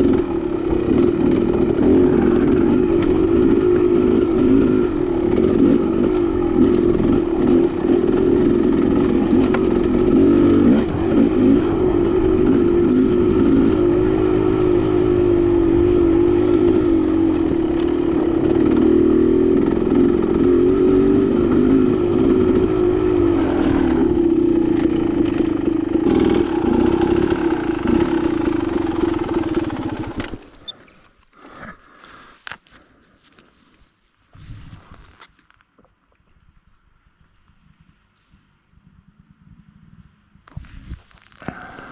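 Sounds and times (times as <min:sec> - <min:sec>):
dirt bike engine: 0:00.0 - 0:30.9.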